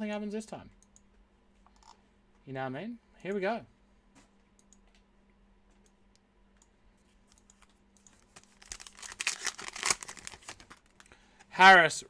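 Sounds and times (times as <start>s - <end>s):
wrapper tearing and crinkling: 8.2s - 10.8s.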